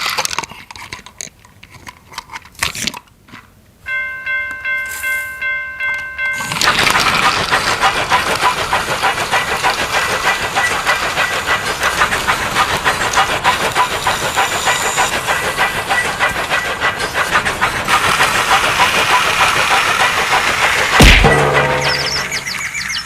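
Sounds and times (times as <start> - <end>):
train wheels clattering: 3.9 - 23.0
steam-like hiss: 6.4 - 22.8.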